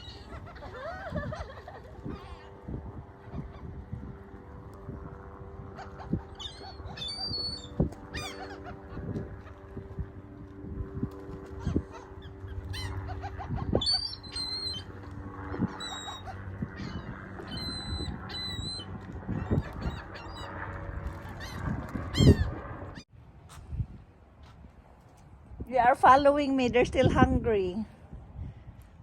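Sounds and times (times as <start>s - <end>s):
flock of birds calling: 0.0s - 2.6s, 5.7s - 10.0s, 11.2s - 23.0s.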